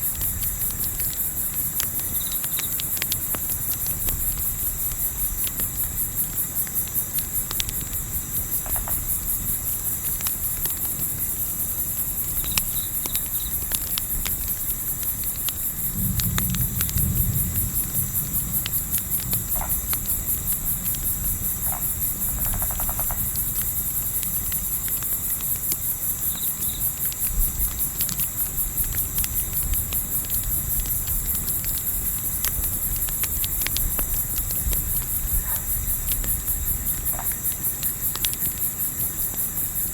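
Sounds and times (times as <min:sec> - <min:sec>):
wind rumbling: 0:00.0 - 0:25.1, 0:27.2 - 0:37.8
campfire crackling: 0:00.0 - 0:39.9
crickets chirring: 0:00.0 - 0:39.9.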